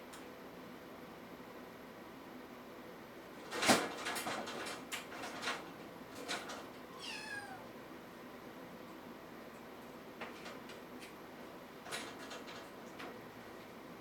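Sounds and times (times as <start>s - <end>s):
kitten mewing: 6.9s - 7.7s.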